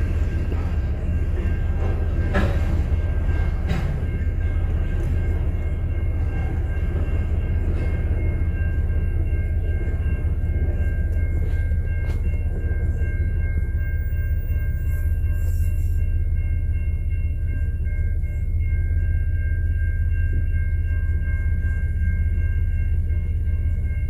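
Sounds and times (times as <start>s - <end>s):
train knocks: 0.0s - 15.3s
freight train rumbling: 0.0s - 24.0s.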